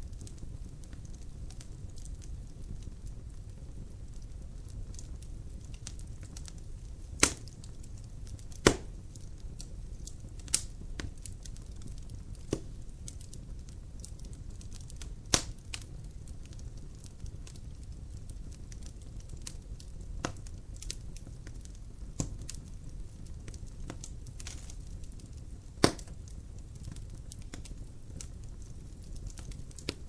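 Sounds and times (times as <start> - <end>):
wood fire burning: 0.0 - 30.0
wood snapping pops: 7.2 - 7.6, 8.5 - 9.0, 12.5 - 12.7, 15.3 - 15.8, 22.2 - 22.4, 25.8 - 26.2.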